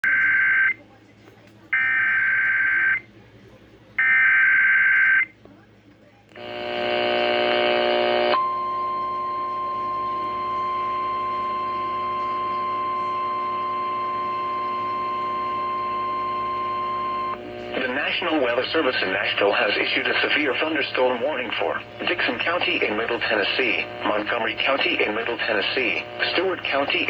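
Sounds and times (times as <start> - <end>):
harsh buzz: 6.3 - 27.0
long steady alert tone: 8.4 - 27.0.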